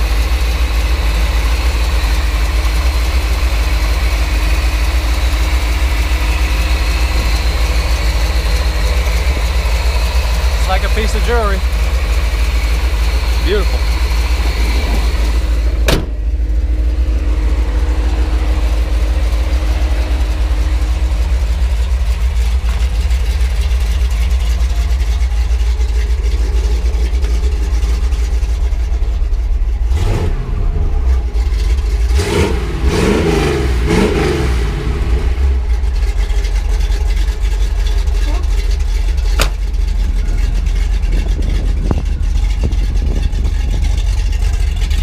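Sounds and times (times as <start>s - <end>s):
car engine idling with heavy rumble: 0.0s - 45.0s
sharp click: 39.4s - 39.7s.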